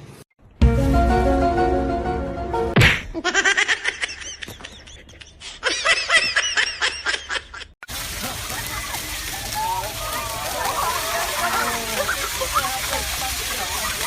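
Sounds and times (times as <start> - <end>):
steady hiss: 7.9 - 14.0.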